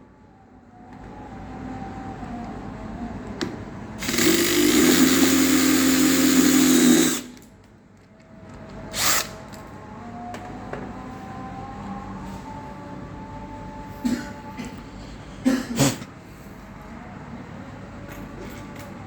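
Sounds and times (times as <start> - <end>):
handheld power tool running: 4.0 - 7.4.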